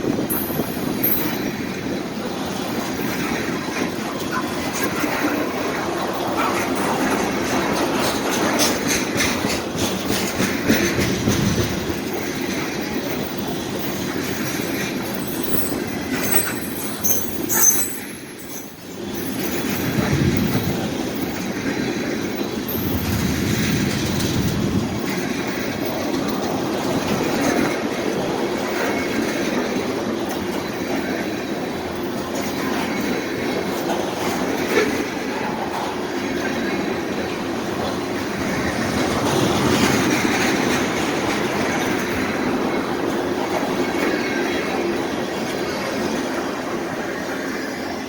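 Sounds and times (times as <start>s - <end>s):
train wheels clicking over rail joints: 0.0s - 48.0s
high wheel squeal: 15.0s - 19.7s.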